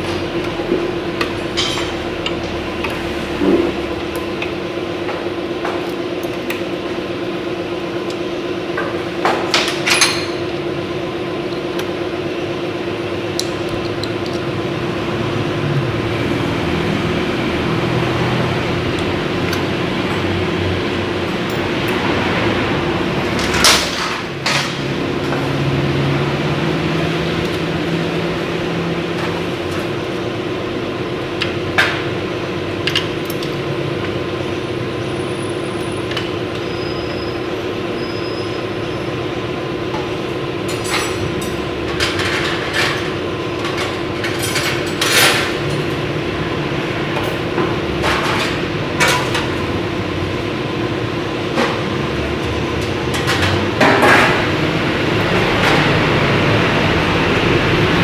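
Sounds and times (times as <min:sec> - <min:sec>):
hand tools clinking and knocking: 0:00.0 - 0:03.8, 0:08.8 - 0:10.6, 0:16.8 - 0:30.3, 0:31.4 - 0:34.2, 0:39.9 - 0:58.0
steady mechanical hum: 0:00.0 - 0:58.0.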